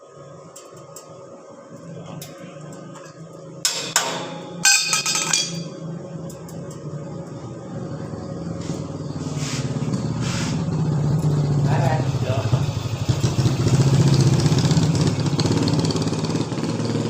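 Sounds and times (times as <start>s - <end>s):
metallic clanks with ringing: 3.0s - 5.8s
small engine running: 8.0s - 17.0s.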